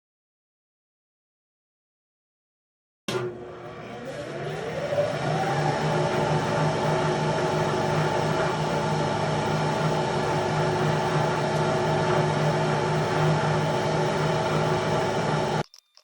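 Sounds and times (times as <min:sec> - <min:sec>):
electric motor humming: 0:03.1 - 0:15.7.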